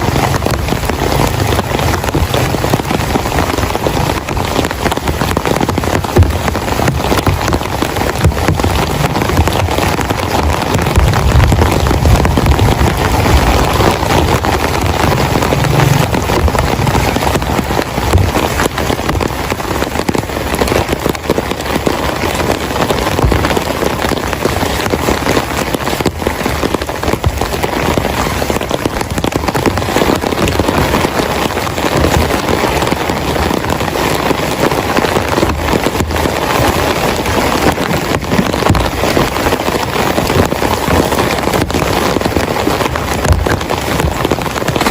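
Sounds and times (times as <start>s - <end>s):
low rumble: 0.0s - 21.3s
heavy rain falling: 0.0s - 44.9s.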